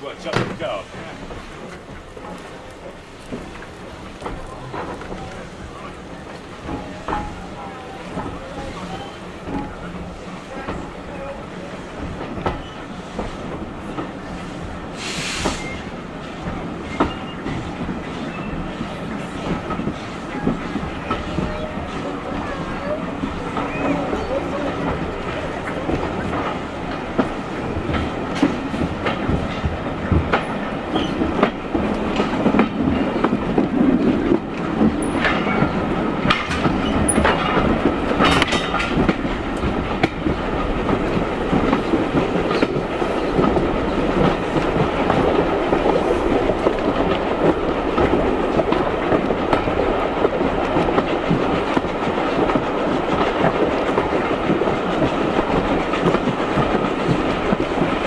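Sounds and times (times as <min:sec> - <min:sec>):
train wheels rumbling on rails: 0:00.0 - 0:58.0
wheels clacking over rail joints: 0:00.0 - 0:58.0.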